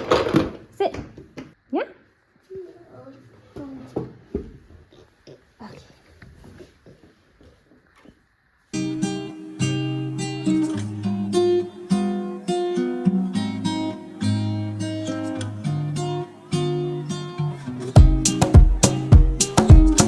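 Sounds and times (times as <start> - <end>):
acoustic guitar melody: 8.8 - 20.0.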